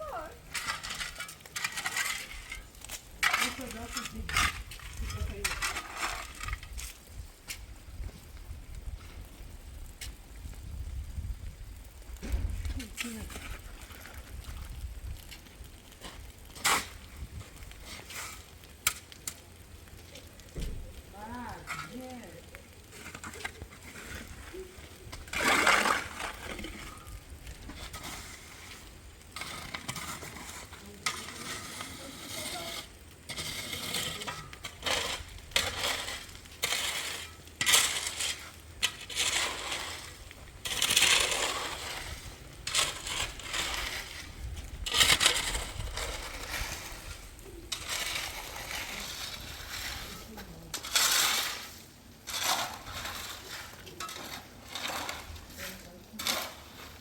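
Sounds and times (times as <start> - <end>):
hard objects clattering and scraping: 0.0 - 7.6, 20.2 - 57.0.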